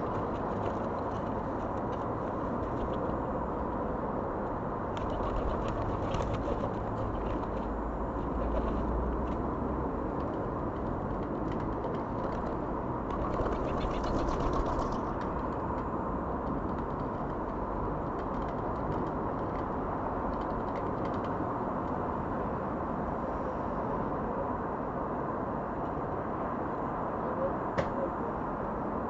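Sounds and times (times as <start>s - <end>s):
outdoor background rumble: 0.0s - 29.0s.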